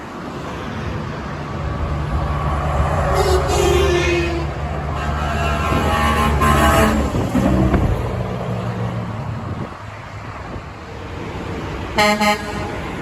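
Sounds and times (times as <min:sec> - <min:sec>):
road and traffic noise: 0:00.0 - 0:13.0
truck passing by: 0:00.0 - 0:13.0.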